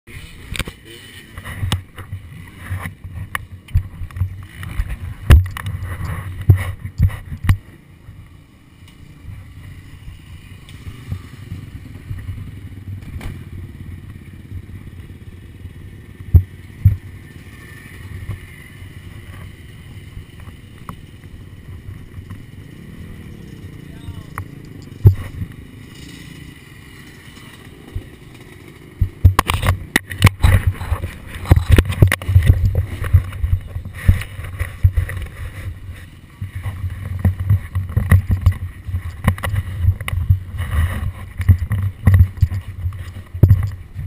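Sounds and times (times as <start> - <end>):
dirt bike low rumble: 0.1 - 44.0
knocks and clatter: 36.5 - 44.0.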